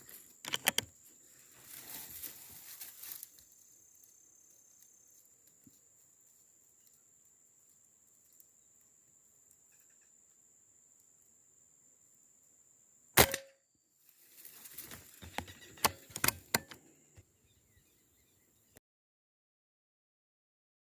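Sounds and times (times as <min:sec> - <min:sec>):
rustling: 0:00.0 - 0:03.6, 0:14.1 - 0:16.3
sharp clicks: 0:00.4 - 0:00.9, 0:15.3 - 0:16.8
air rifle shot: 0:13.2 - 0:13.5.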